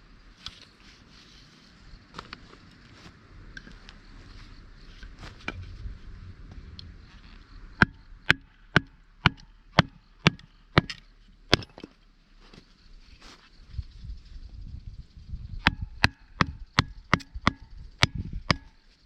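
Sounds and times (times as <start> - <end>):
hatchet chopping firewood: 7.8 - 12.0, 15.6 - 18.9.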